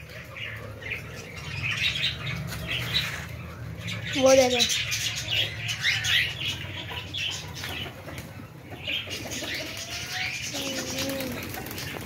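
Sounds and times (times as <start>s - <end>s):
pet birds chirping: 0.0s - 12.0s
wings flapping: 9.3s - 12.0s.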